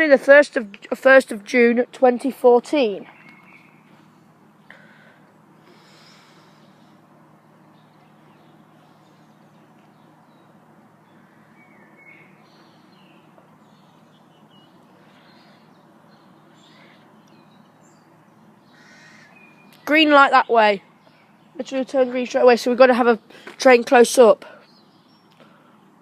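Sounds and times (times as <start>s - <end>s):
faint bird chirps: 3.0s - 21.6s.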